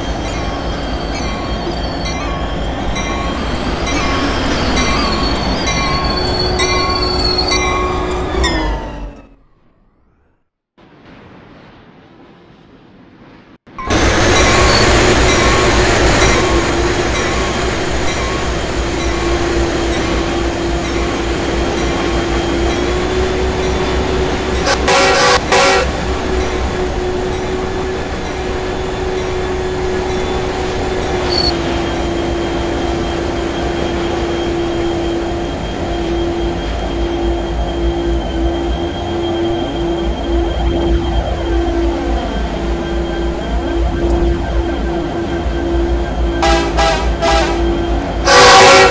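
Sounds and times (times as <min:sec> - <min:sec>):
freight train rumbling: 0:00.0 - 0:09.9, 0:10.8 - 0:48.9
droning tone: 0:13.8 - 0:48.9.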